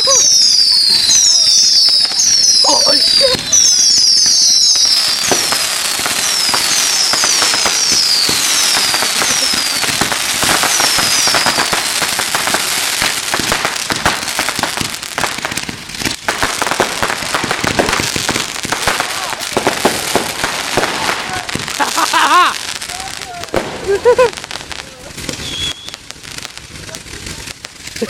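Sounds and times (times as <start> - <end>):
firework whistles falling in pitch: 0.0 - 11.8, 25.3 - 26.1
firework cake crackling shots: 0.0 - 28.0.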